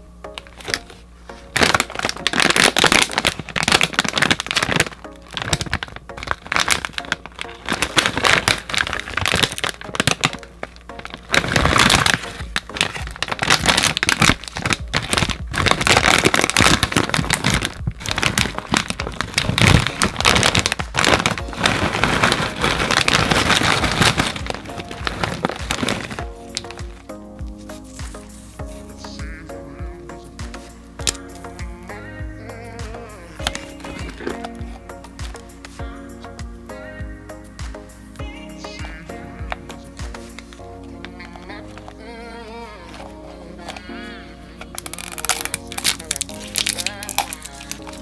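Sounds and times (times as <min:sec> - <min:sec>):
background music: 0:00.0 - 0:48.0
plastic wrapper crinkling: 0:00.3 - 0:28.8, 0:30.5 - 0:31.6, 0:33.4 - 0:35.8, 0:38.8 - 0:42.0, 0:44.6 - 0:48.0.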